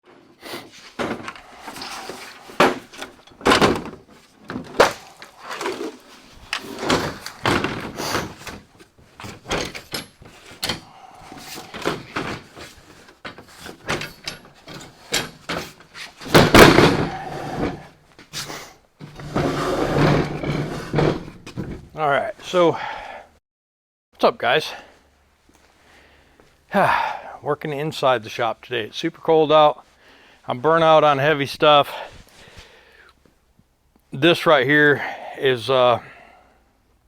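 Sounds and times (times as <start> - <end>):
knocks clunks and clatter: 0.1 - 18.4, 19.0 - 22.0
loud banging: 16.3 - 17.8.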